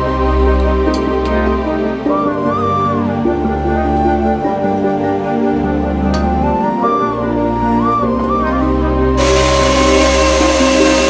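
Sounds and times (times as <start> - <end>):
soft new-age music: 0.0 - 11.0.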